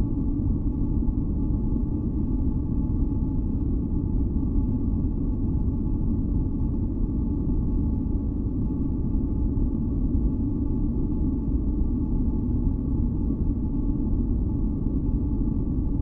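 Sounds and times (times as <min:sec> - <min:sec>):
faint held tones humming: 0:00.0 - 0:16.0.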